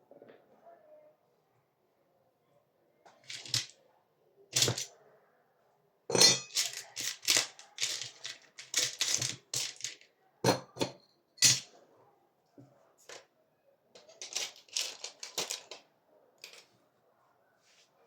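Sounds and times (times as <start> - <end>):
small parts and tools clinking: 3.2 - 3.7, 4.6 - 4.9, 6.1 - 11.7, 14.0 - 15.8.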